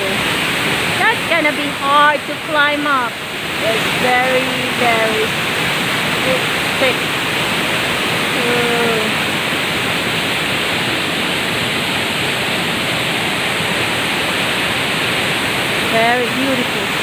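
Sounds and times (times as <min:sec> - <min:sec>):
waterfall pouring into pool: 0:04.7 - 0:17.0.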